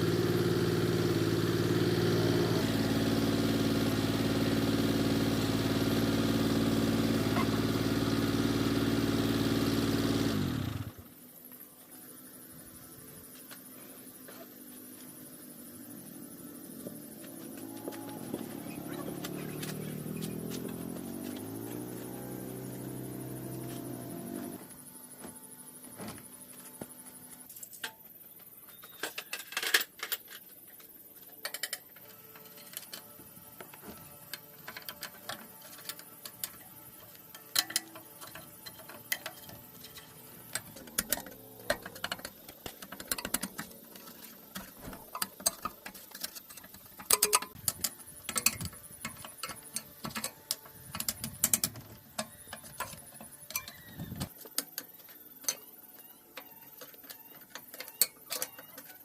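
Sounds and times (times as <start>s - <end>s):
tools and metal parts clicking: 28.7s - 59.0s.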